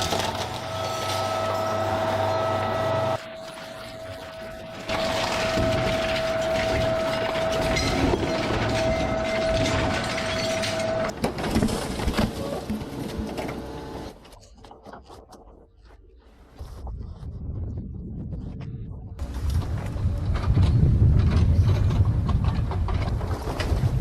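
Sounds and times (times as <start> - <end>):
heavy machinery whine: 0.0 - 11.1
machinery clatter and knocks: 4.8 - 13.8, 19.4 - 24.0.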